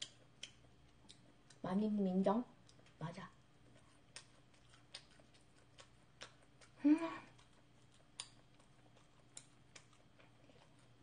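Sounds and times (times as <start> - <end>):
mouth clicks and smacks chewing: 0.0 - 1.7, 2.6 - 3.0, 3.6 - 11.0
person humming: 6.8 - 7.3.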